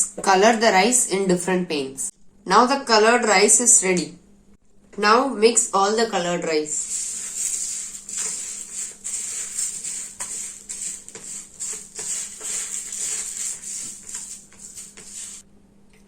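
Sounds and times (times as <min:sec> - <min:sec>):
dry rice grains rattling in a bowl: 0:06.8 - 0:15.4.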